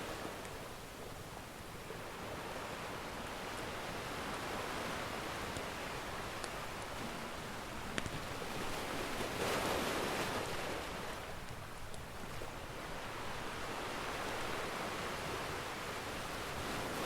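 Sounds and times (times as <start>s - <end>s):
wood fire crackle: 6.3s - 7.0s, 7.8s - 8.4s.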